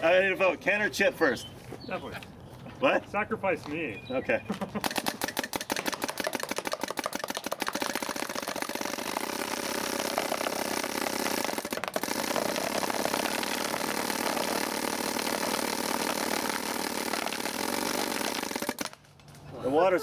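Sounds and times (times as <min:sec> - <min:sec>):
paintball gun firing rapidly: 0:04.8 - 0:19.1.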